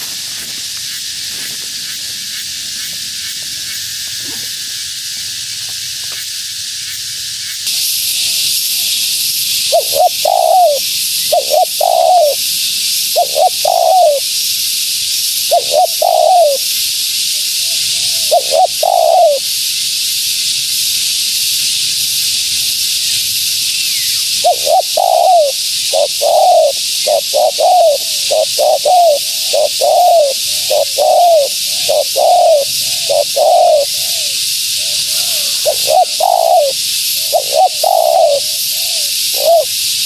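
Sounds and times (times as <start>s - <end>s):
steady high hiss: 0.0s - 40.0s
dove cooing: 9.7s - 12.5s, 13.1s - 14.3s, 15.5s - 16.7s, 17.6s - 19.4s, 24.4s - 39.8s.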